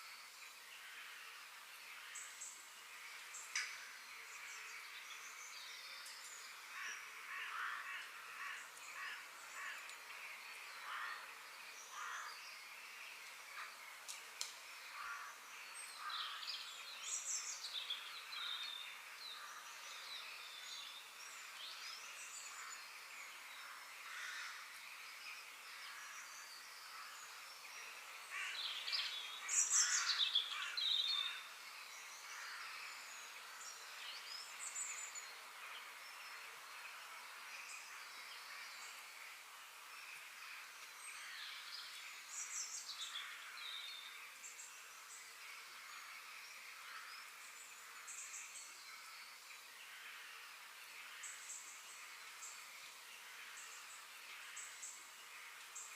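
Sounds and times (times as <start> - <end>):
outdoor background hiss: 0.0 - 55.9
birds chirping and calling: 28.3 - 33.3.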